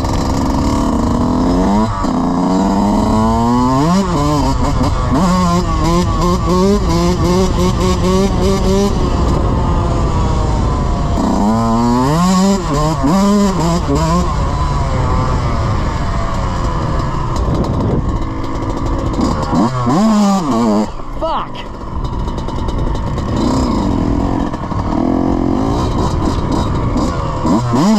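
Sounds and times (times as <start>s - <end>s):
dirt bike engine revving: 0.0s - 27.9s.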